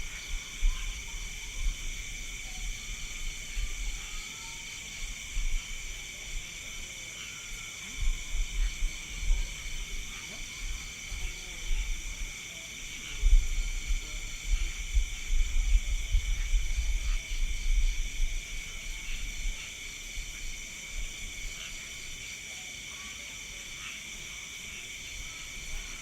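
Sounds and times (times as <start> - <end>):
crickets buzzing: 0.0 - 26.0.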